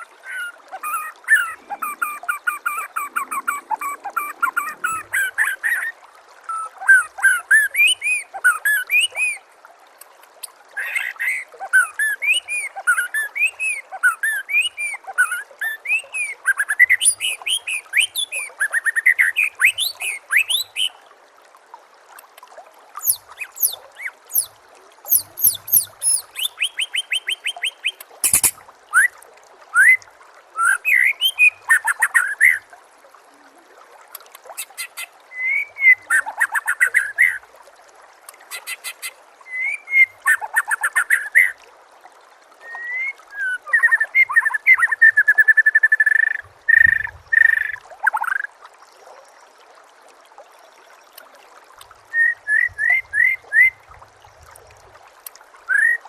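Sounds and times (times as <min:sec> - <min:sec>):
songbird singing: 0:23.0 - 0:28.6.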